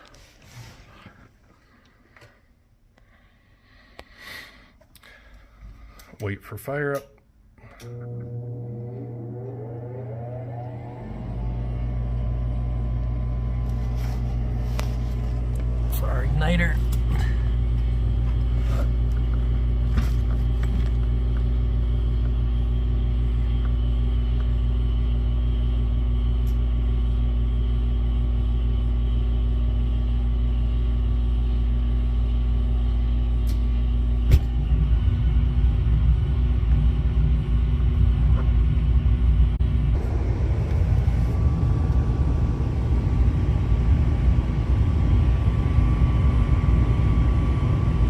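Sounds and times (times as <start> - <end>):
furnace motor humming: 7.5 - 48.0
burners rumbling: 34.5 - 48.0.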